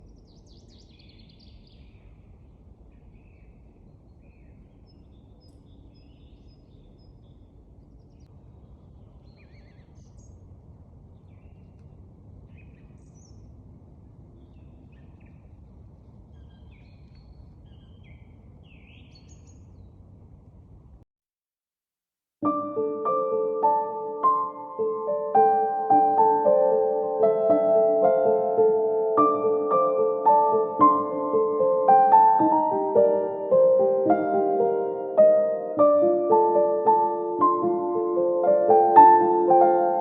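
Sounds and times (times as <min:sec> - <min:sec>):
songbirds chirping and trilling: 0:00.0 - 0:20.2
low outdoor rumble: 0:00.0 - 0:21.0.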